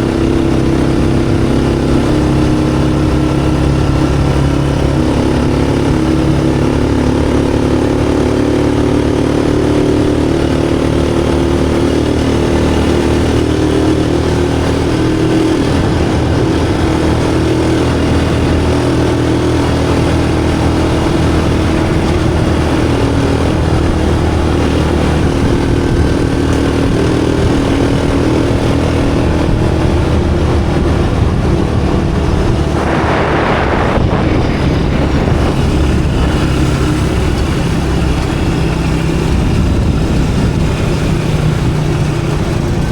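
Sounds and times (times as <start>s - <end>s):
vehicle engine running: 0.0s - 42.9s
brief rush of noise: 32.6s - 36.6s.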